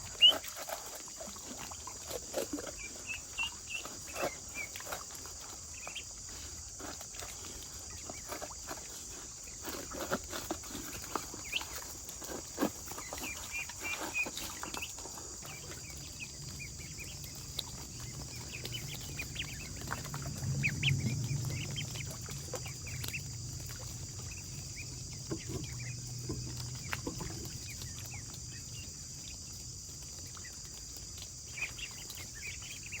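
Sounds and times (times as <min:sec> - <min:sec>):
chickens clucking: 0:00.0 - 0:29.7
small birds chirping: 0:00.0 - 0:33.0
low hum: 0:15.4 - 0:28.1.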